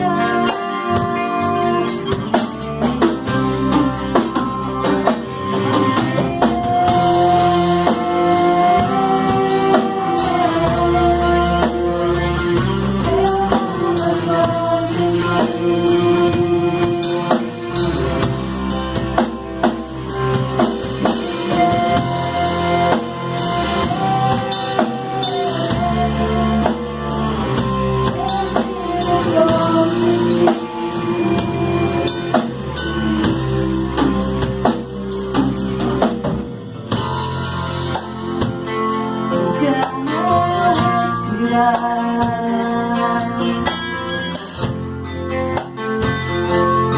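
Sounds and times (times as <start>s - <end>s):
drum kit beat: 0.0s - 46.9s
guitars: 0.0s - 46.9s
held melody line: 0.0s - 46.9s
worship band music: 0.0s - 46.9s.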